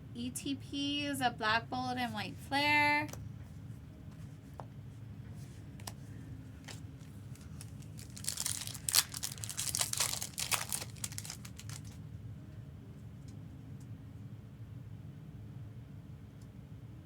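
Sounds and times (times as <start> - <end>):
plastic wrapping tearing and crinkling: 6.7 - 12.0.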